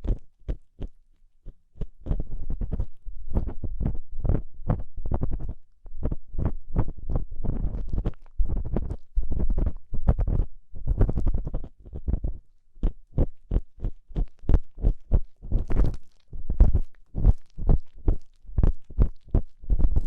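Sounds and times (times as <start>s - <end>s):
tool scraping inside microphone ear: 2.0s - 12.4s.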